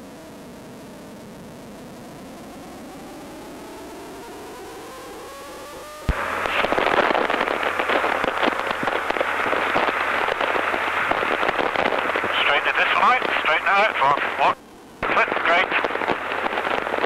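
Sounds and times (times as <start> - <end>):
low hum: 6.1 - 17.0
wind hiss: 6.1 - 17.0.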